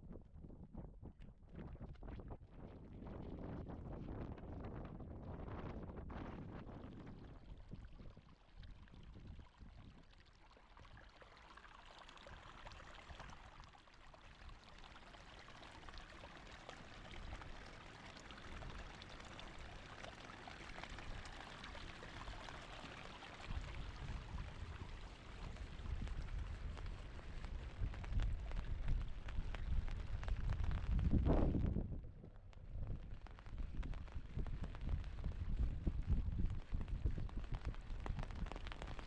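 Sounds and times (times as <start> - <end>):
rushing water: 10.7 - 30.8.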